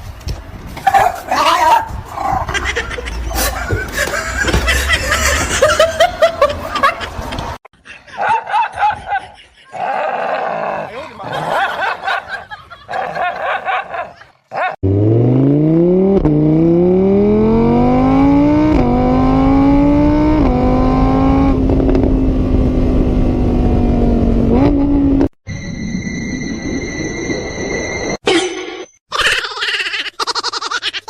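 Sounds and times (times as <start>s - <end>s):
car engine accelerating: 14.8s - 25.3s.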